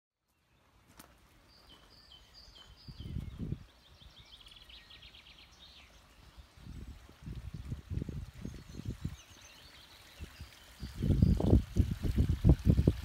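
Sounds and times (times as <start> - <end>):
songbird singing a trill: 1.4 - 11.7.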